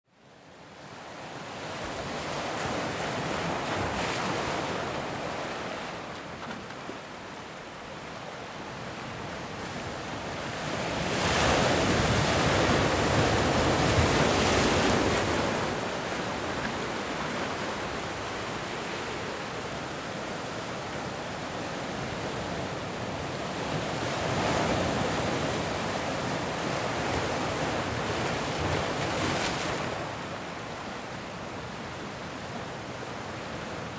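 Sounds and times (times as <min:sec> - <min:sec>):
ocean waves breaking: 0:08.8 - 0:31.2.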